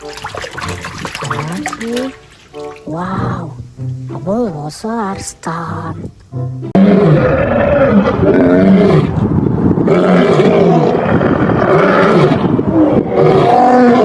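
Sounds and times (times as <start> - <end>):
lion roaring: 6.7 - 14.0.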